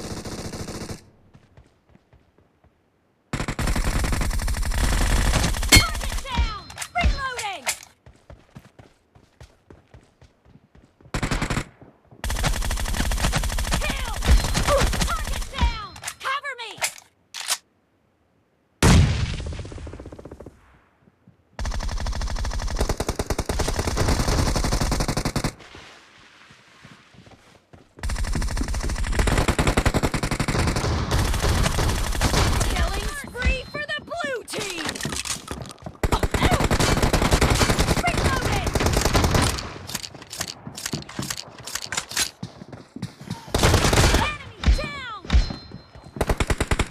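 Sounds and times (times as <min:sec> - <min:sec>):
video game automatic gunfire: 0:28.0 - 0:33.6, 0:36.0 - 0:39.8.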